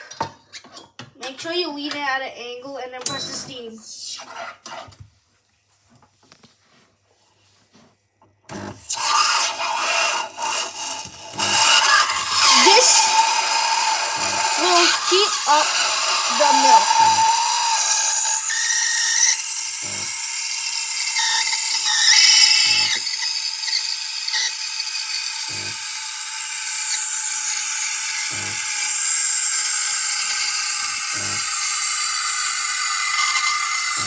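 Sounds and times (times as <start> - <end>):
steam wand hissing into milk: 8.7 - 34.0.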